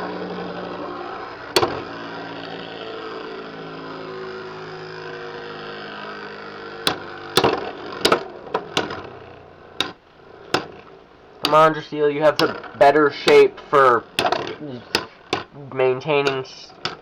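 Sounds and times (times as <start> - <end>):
spinning tops whirring: 0.0 - 17.0
tops clacking: 1.4 - 2.0, 6.7 - 17.0.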